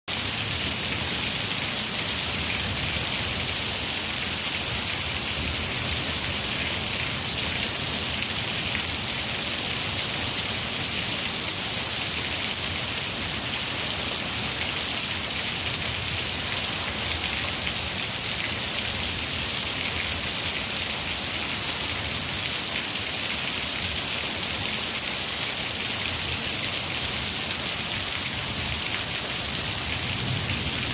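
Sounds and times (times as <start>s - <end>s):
heavy rain pouring: 0.1s - 30.9s.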